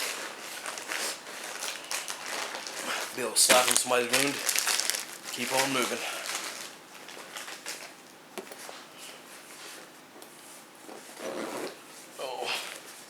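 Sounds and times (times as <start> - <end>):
soft rustling of packaging: 0.0 - 8.0.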